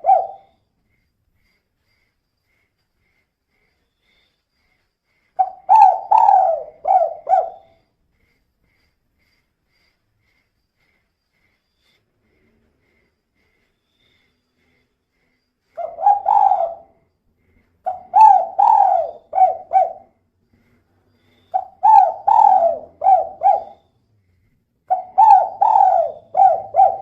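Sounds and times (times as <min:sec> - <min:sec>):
dove cooing: 0:00.0 - 0:00.5, 0:05.4 - 0:07.8, 0:15.8 - 0:16.9, 0:17.9 - 0:20.2, 0:21.5 - 0:23.8, 0:24.9 - 0:27.0.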